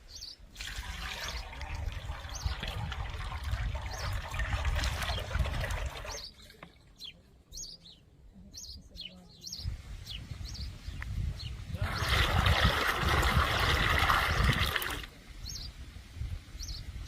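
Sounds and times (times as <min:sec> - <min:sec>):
small birds chirping: 0:00.0 - 0:03.1, 0:03.7 - 0:12.2, 0:15.4 - 0:15.8, 0:16.5 - 0:17.0
running water: 0:00.4 - 0:07.1, 0:11.7 - 0:15.2.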